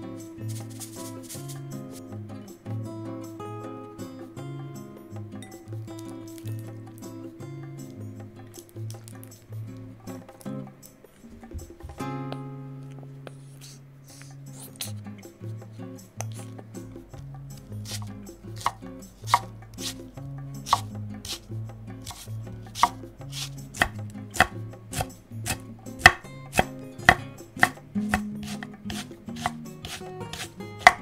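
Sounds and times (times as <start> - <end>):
knife chopping on cutting board: 17.8 - 20.0, 20.7 - 21.4, 22.0 - 31.0.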